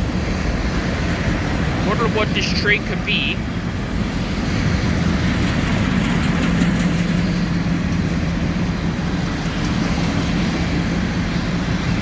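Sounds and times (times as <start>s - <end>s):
diesel engine hum: 0.0s - 12.0s
train wheels rattling on rails: 0.0s - 12.0s.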